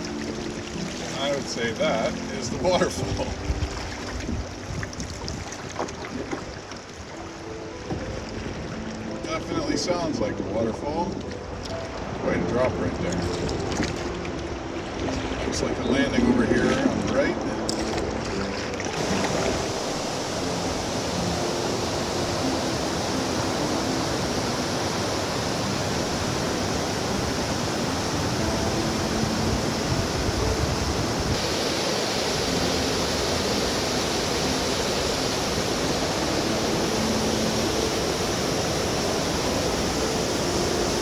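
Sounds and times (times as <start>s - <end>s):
waterfall rushing: 0.0s - 4.1s, 18.4s - 41.0s.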